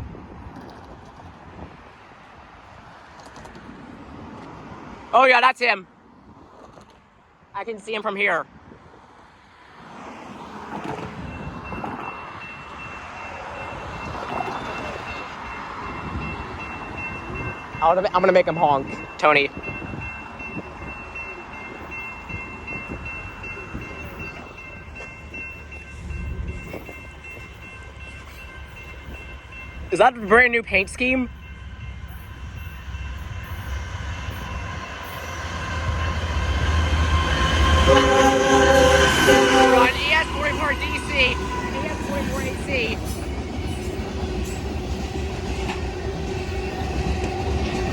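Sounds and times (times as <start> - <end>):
freight train rumble: 10.2 - 47.9
railroad crossing warning bell: 11.1 - 47.9
locomotive air horn: 37.0 - 43.2.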